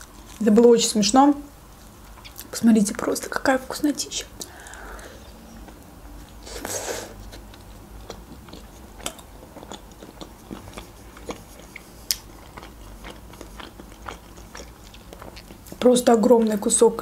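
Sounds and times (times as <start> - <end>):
chewing with mouth clicks: 5.6 - 15.9.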